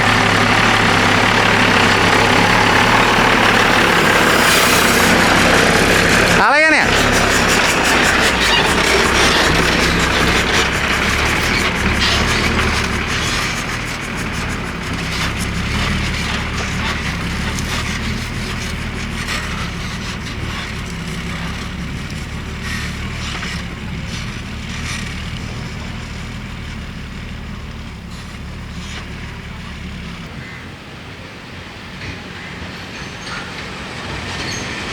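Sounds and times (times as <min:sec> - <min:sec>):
truck diesel engine running: 0:00.0 - 0:32.0
light rattles and clicks: 0:06.9 - 0:30.3.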